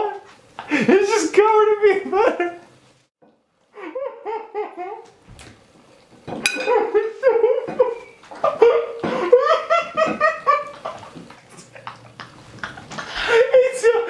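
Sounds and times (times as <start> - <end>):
hearty laughter: 0.0 - 1.2, 6.7 - 14.0.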